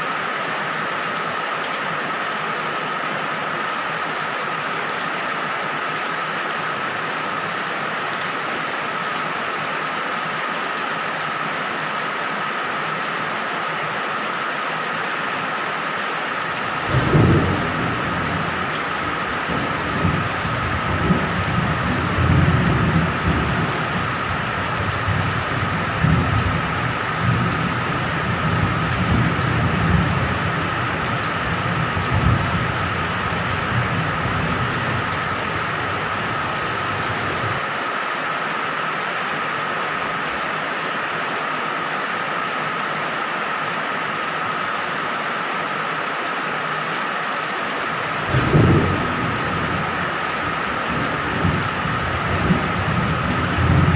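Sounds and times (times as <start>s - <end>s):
heavy rain: 0.0s - 53.9s
thunder rumbling: 16.6s - 37.6s, 48.1s - 53.9s.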